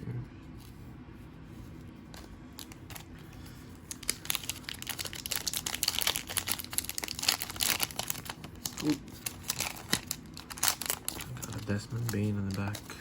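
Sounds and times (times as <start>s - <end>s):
foil wrapper crinkling: 3.8s - 13.0s.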